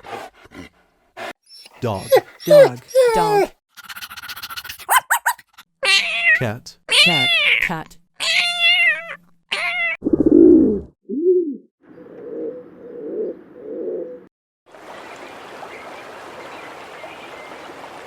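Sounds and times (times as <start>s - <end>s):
pigeon cooing: 1.5s - 4.2s, 10.0s - 14.3s.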